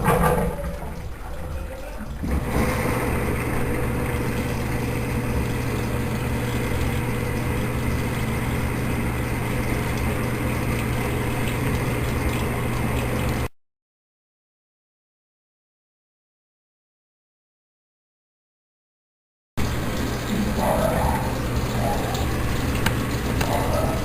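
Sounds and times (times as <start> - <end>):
washing machine motor hum: 0.0 - 13.5, 19.6 - 24.0.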